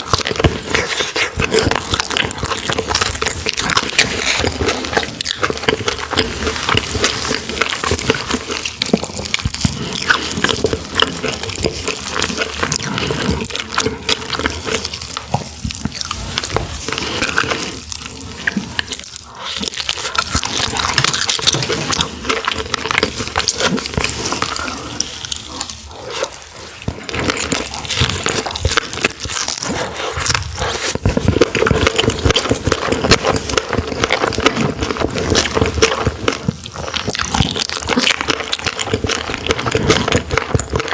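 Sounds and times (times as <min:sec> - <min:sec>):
wet chewing and mouth smacking: 0:00.0 - 0:40.9.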